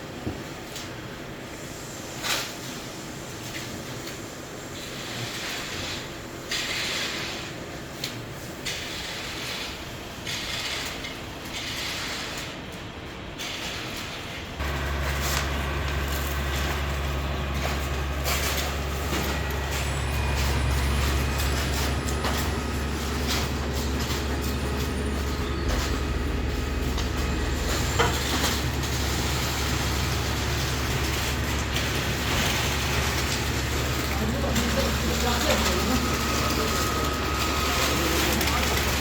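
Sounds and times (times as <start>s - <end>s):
heavy machinery engine humming: 14.6s - 39.0s.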